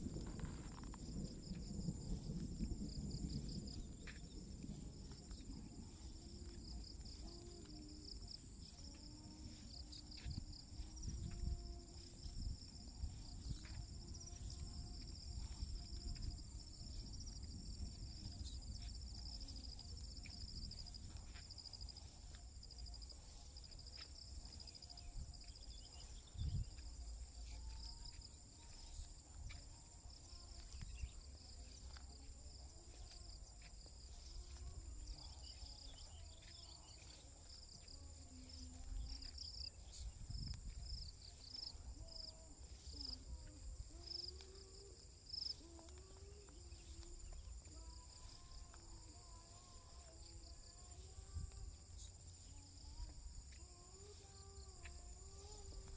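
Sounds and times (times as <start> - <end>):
low rumble: 0.0 - 22.7
rapid pulsing insect chirp: 0.0 - 55.9
high-pitched insect buzz: 3.4 - 55.9.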